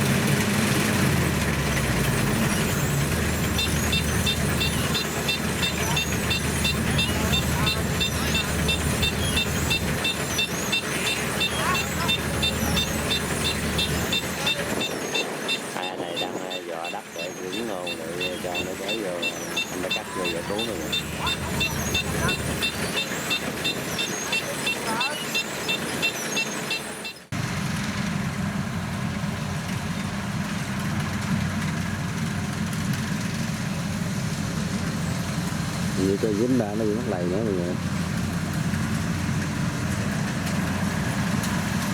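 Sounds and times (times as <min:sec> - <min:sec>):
diesel engine running: 0:00.0 - 0:41.9
high-pitched ticking: 0:02.2 - 0:27.2.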